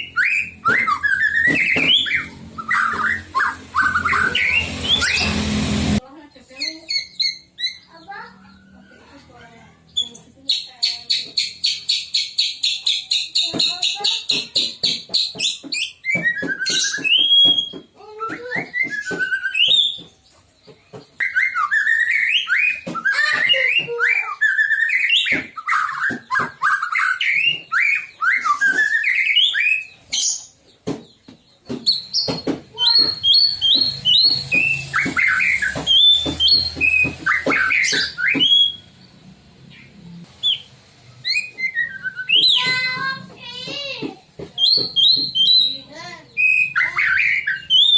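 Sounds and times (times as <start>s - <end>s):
bird singing whistled notes: 0.0s - 5.5s, 31.9s - 39.0s, 40.4s - 42.7s, 44.6s - 47.9s.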